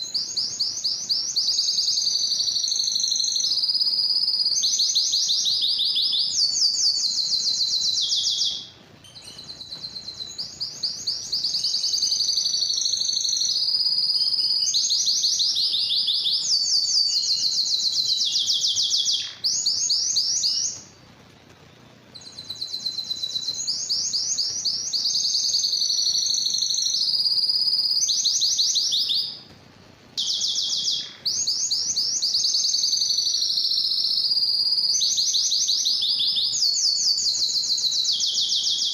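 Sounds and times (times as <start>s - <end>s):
canary singing trills: 0.0s - 29.5s, 30.2s - 38.9s.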